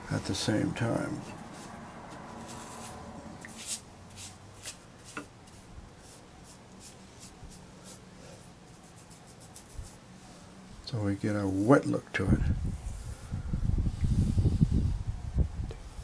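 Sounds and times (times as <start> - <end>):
brush swishing on paper: 0.9 - 10.4.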